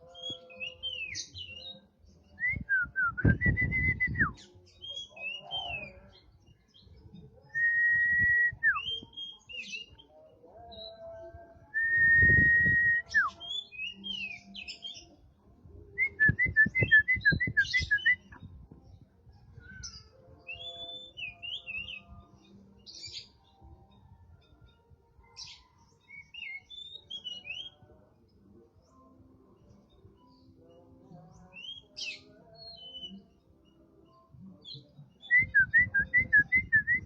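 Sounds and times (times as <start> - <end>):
songbirds whistling: 0.0 - 10.1, 11.8 - 15.2, 16.0 - 23.6, 25.2 - 27.9, 31.3 - 33.4, 34.1 - 37.0.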